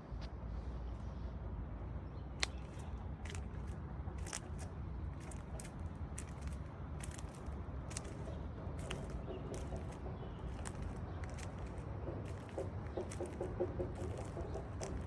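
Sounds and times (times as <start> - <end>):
steady low rumble: 2.2 - 15.0
short crunching clicks: 2.4 - 15.0.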